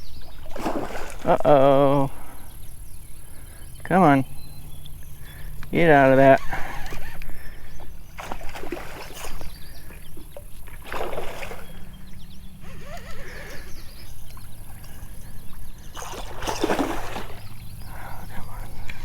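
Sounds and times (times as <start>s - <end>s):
fish thrashing in water: 0.2s - 1.7s, 6.6s - 13.7s, 14.3s - 19.0s.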